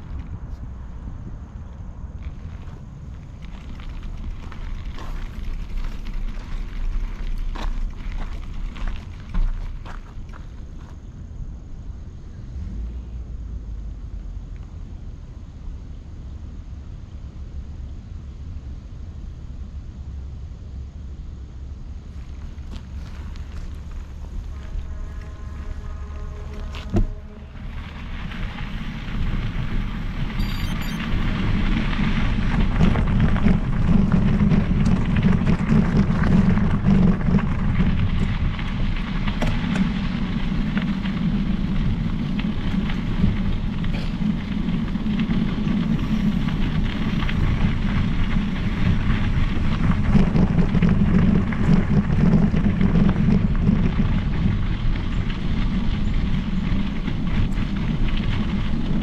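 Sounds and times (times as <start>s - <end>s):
bike tyres rolling on trail: 0.0s - 59.0s
wind buffeting microphone: 21.6s - 59.0s.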